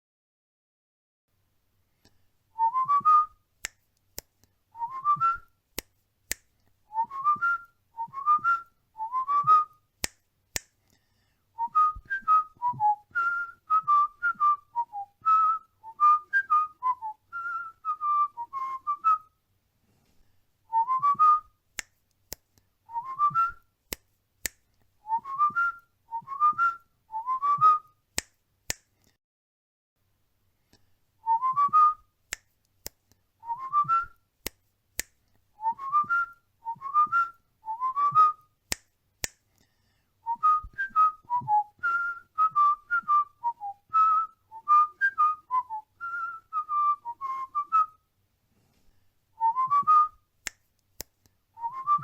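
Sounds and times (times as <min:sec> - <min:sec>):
cockatiel whistling a tune: 0:40.3 - 0:48.0, 0:51.6 - 0:52.0.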